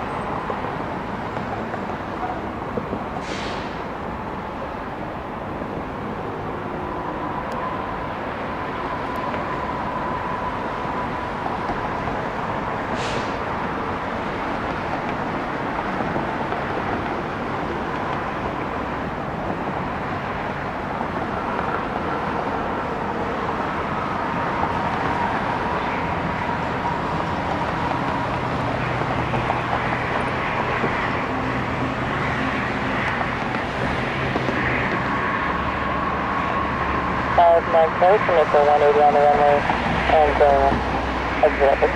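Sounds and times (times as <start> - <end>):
jet engines running: 3.6 - 41.9.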